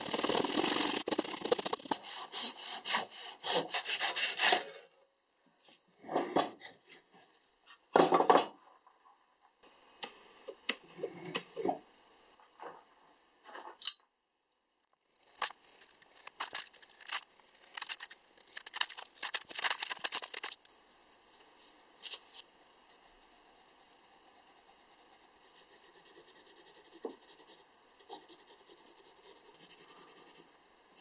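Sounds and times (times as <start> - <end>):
knife cutting paper: 0.0 - 4.7.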